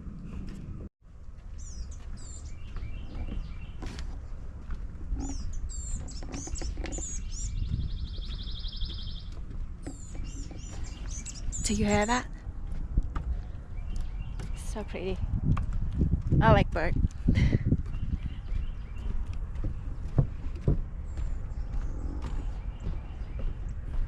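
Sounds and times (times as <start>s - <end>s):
songbirds chirping: 0.0s - 24.0s
steady low rumble: 7.2s - 24.0s.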